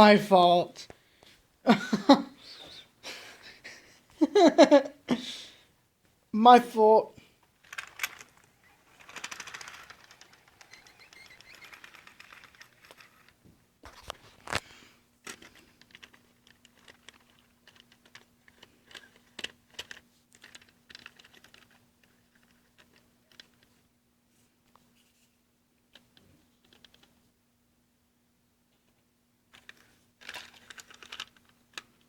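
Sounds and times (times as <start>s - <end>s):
faint steady hum: 0.0s - 32.0s
model train clicking on track: 7.6s - 13.4s.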